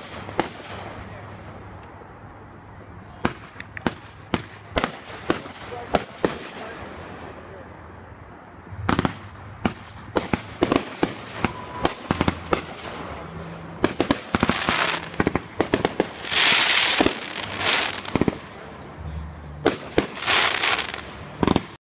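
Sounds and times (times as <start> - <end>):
fireworks bangs and cracks: 0.0 - 1.6, 3.1 - 7.7, 8.7 - 21.8
hissing crackling firework bursts: 8.8 - 18.6, 19.5 - 21.8.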